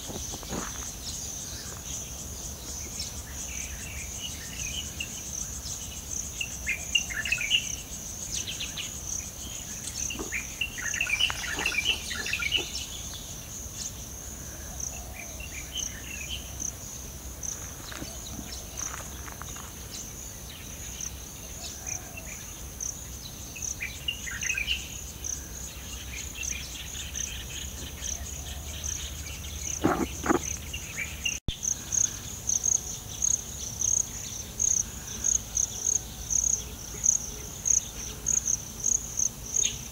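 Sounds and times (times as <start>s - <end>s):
insects trilling: 0.0s - 39.9s
birds chirping: 8.4s - 14.0s, 25.8s - 32.3s.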